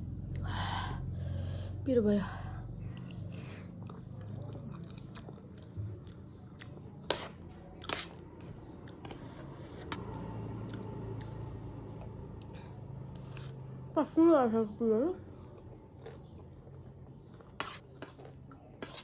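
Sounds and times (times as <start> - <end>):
chewing: 2.9 - 7.1, 15.4 - 18.7.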